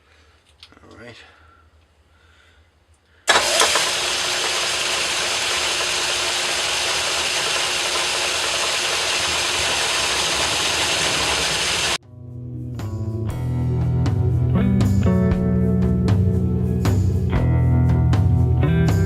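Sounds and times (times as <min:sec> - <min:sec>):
metal lathe running: 0:03.3 - 0:12.0.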